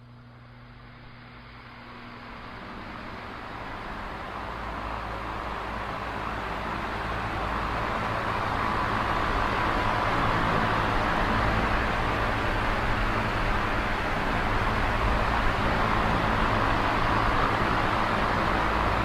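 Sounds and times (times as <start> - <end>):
electric fan running: 0.0 - 19.0.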